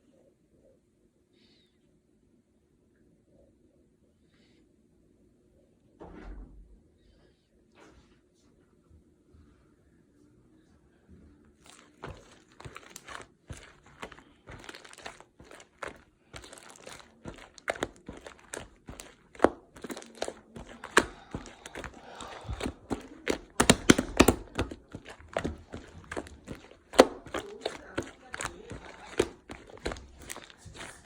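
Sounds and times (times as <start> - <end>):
slime squished by hand: 11.6 - 31.0.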